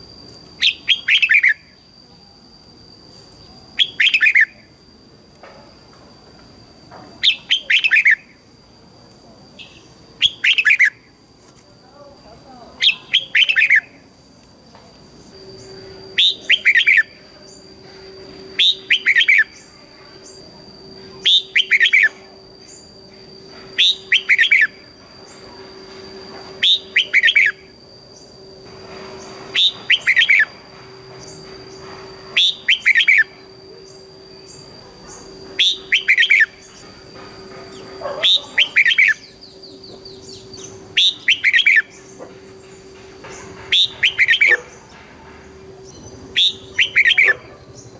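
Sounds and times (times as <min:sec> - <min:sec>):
faint steady whine: 0:00.0 - 0:47.9
bulbul singing bubbling song: 0:12.8 - 0:14.0, 0:15.6 - 0:20.5, 0:21.2 - 0:25.4, 0:26.6 - 0:28.4, 0:31.2 - 0:37.0, 0:37.7 - 0:44.6, 0:45.8 - 0:47.9.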